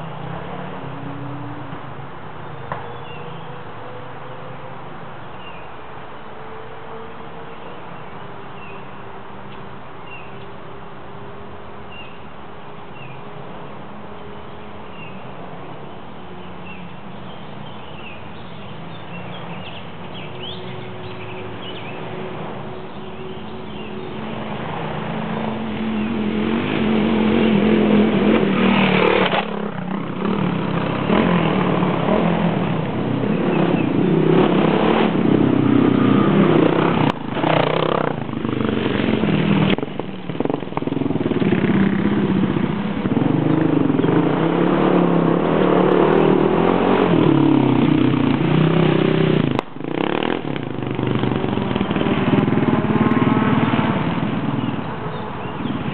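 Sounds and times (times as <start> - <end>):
motorcycle engine revving: 19.6 - 55.9.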